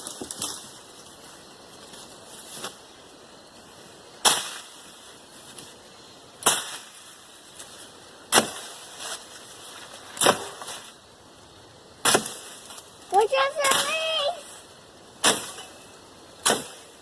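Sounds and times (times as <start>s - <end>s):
hand tool striking brush: 13.6s - 14.0s.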